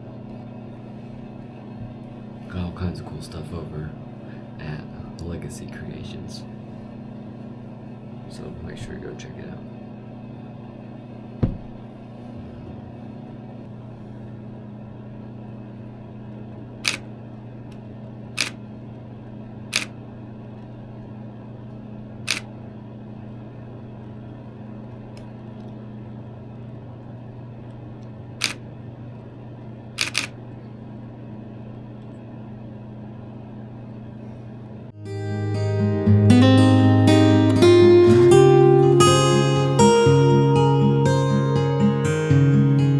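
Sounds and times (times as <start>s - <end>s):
steady low hum: 0.0s - 42.9s
camera shutter clicks: 16.8s - 17.0s, 30.0s - 30.4s.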